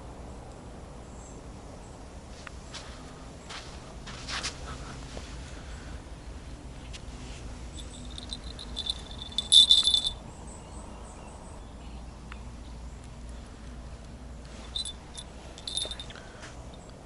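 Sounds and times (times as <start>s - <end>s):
high-pitched rattle: 7.8s - 10.2s, 14.7s - 16.2s.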